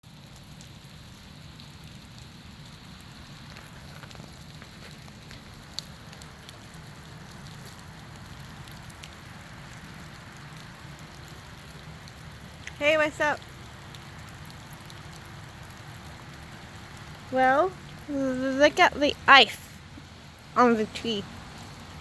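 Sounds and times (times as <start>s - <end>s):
ice dripping and falling: 0.1s - 22.0s.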